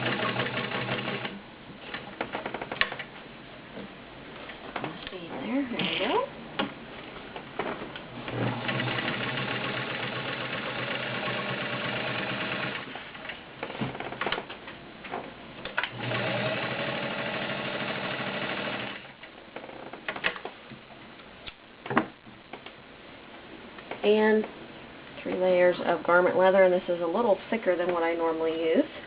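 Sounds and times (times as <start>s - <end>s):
sewing machine stitching: 0.0s - 1.4s, 8.3s - 13.0s, 15.8s - 19.1s.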